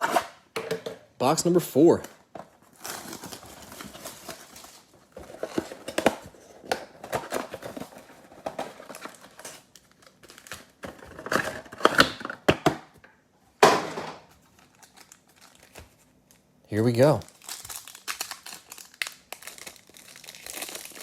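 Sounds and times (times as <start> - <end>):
plastic wrap crinkling and ripping: 2.6 - 12.2, 14.4 - 21.0.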